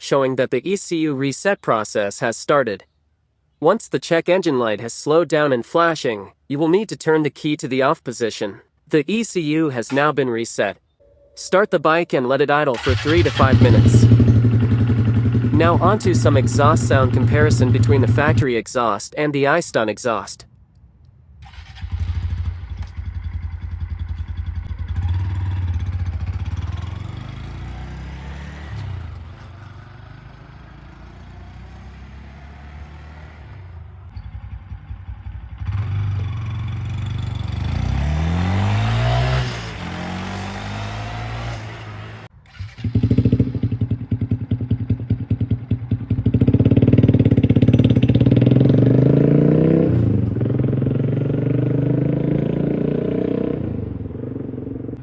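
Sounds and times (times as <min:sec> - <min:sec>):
motorcycle engine idling and revving: 0:12.8 - 0:18.4, 0:21.4 - 0:55.0.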